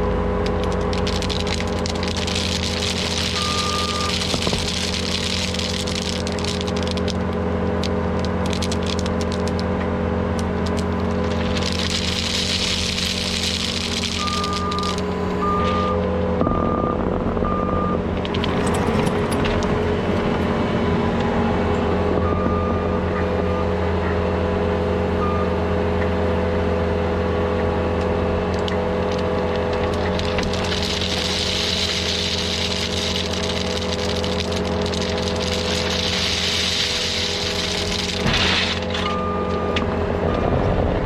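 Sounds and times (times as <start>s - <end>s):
diesel engine running: 0.0s - 41.0s
reversing alarm beeps: 3.3s - 4.2s, 14.2s - 18.0s, 22.2s - 23.8s, 25.2s - 25.6s, 39.0s - 40.6s.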